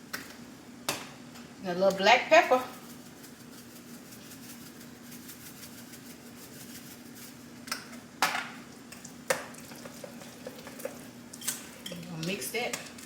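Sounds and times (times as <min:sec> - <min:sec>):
pepper shaker rattling: 0:02.5 - 0:07.6.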